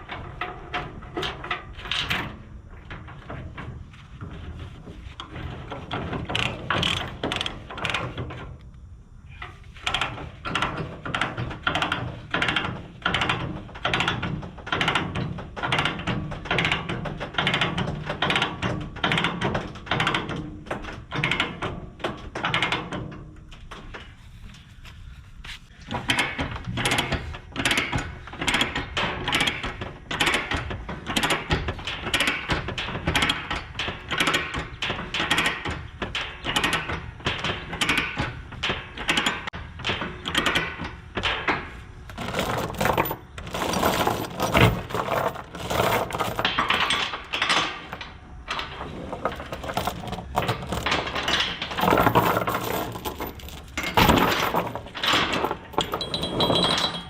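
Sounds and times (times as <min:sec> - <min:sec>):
tie-down chains clanking: 0:42.1 - 0:57.0.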